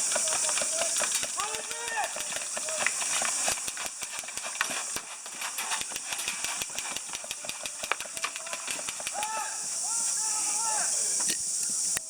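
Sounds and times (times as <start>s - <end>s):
high hiss: 0.0s - 12.0s
sharp clicks and snaps: 1.0s - 9.4s.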